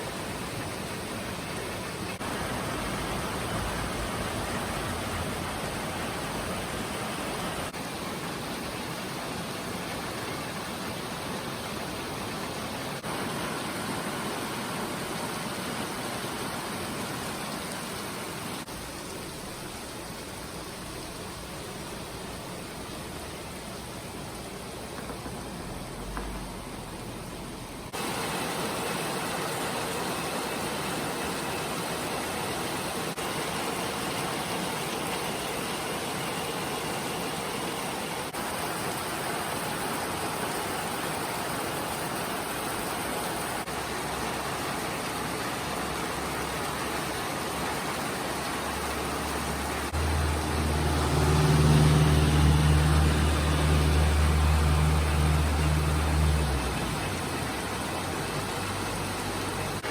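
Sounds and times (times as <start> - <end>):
steady rain falling: 0.0 - 59.9
vehicle engine running: 24.8 - 28.0.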